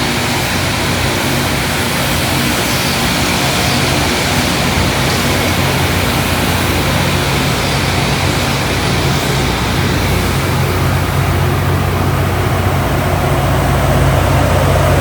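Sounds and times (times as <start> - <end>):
grinding stones hissing on rail: 0.0 - 15.0
low engine hum: 6.0 - 15.0.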